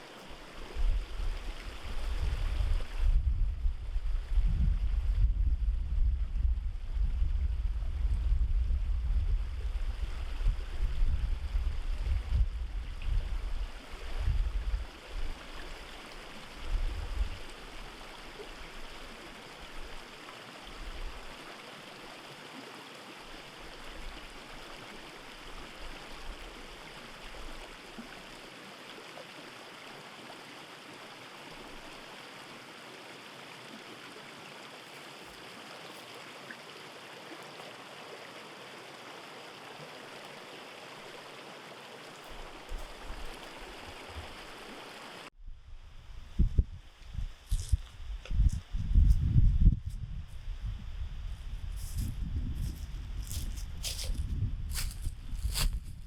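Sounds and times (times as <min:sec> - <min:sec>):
stream rushing: 0:00.0 - 0:03.0, 0:13.1 - 0:45.3
wind buffeting microphone: 0:00.7 - 0:15.4, 0:16.6 - 0:17.6, 0:45.4 - 0:56.0.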